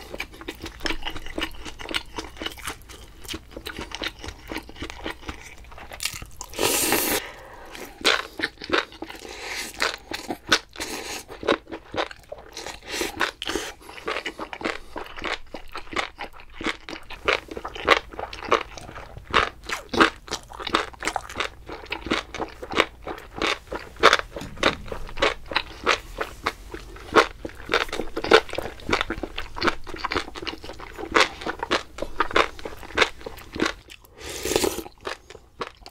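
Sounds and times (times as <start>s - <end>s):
chewing and biting food: 0.0s - 35.9s
rush of noise: 24.4s - 25.6s.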